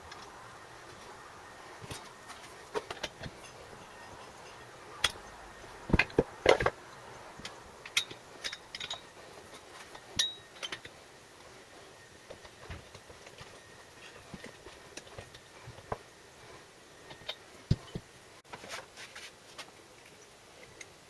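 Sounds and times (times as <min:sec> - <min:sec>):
metal tools clinking: 0:07.4 - 0:11.6.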